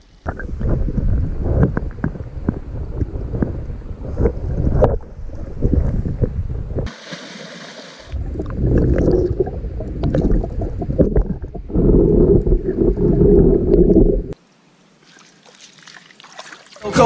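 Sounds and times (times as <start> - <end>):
water noise: 0.0 - 17.0
wind buffeting microphone: 0.2 - 6.9, 8.2 - 14.4.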